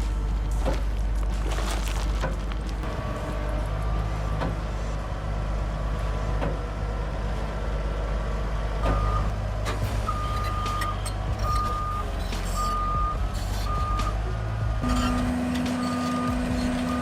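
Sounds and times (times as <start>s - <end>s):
truck diesel engine rumbling: 0.0s - 17.0s
reversing alarm beeping: 10.1s - 14.2s, 14.8s - 17.0s.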